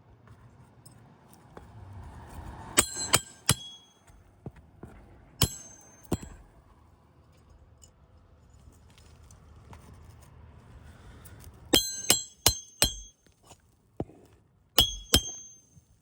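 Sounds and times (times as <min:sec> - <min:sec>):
hammer striking nails: 0:02.8 - 0:04.0, 0:05.4 - 0:06.4, 0:11.8 - 0:13.2, 0:14.8 - 0:15.8.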